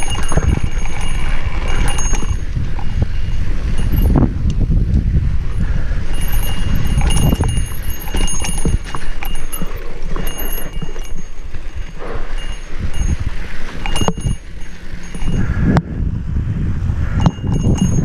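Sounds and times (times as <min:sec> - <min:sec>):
mountain bike rattling: 0:00.0 - 0:18.0
wind rumbling on microphone: 0:00.0 - 0:18.0.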